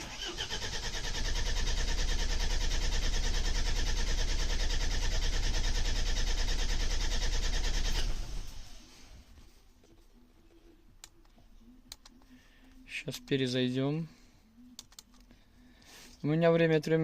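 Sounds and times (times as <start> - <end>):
diesel engine cranking: 0.0 - 8.7.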